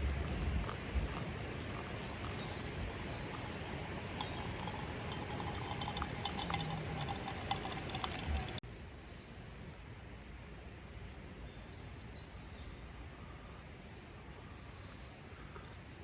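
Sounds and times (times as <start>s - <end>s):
campfire crackling and popping: 0.0s - 8.6s.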